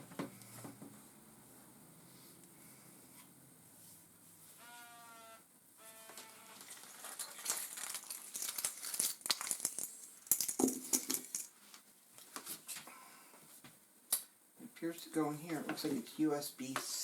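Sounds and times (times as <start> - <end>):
packaging crinkling: 6.1 - 11.5.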